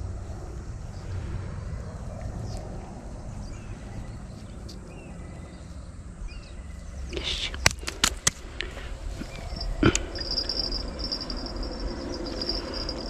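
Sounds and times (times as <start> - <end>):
low rumble: 0.0 - 13.0
faint chirps and clicks: 3.8 - 10.6.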